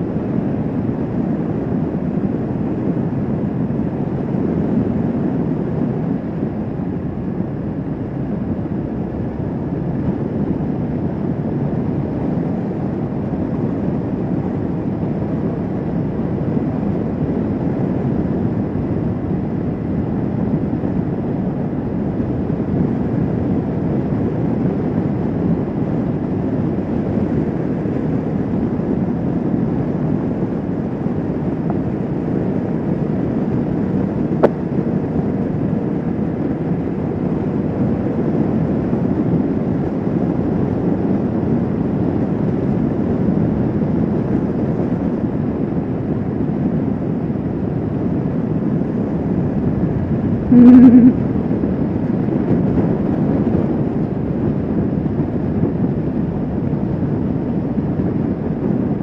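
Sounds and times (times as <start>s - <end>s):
wind rush on microphone: 0.0s - 59.0s.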